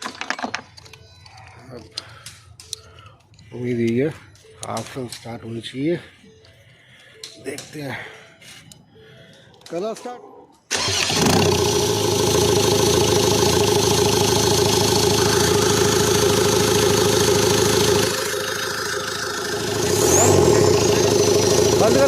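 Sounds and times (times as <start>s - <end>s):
diesel engine running: 10.7s - 22.0s.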